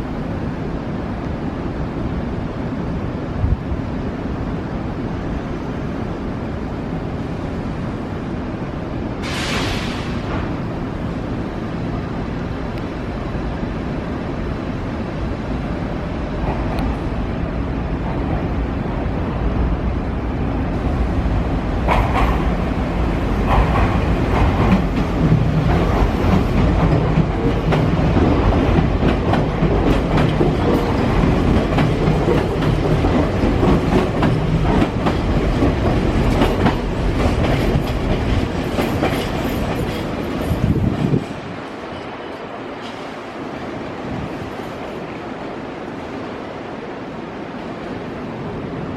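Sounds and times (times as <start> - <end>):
electric train rumble and hum: 0.0 - 48.9
train wheels clicking over rail joints: 21.8 - 22.6, 23.3 - 41.3.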